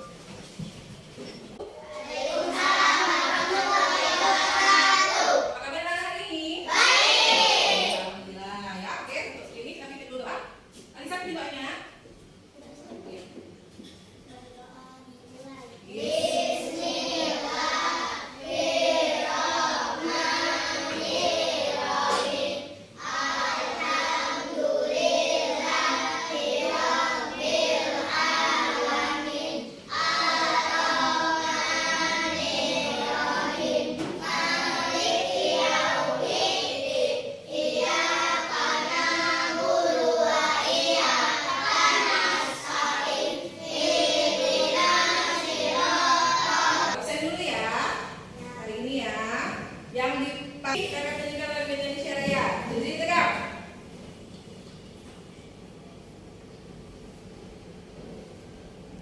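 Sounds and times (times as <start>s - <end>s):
children singing: 1.8s - 5.6s, 6.7s - 8.1s, 15.9s - 47.0s.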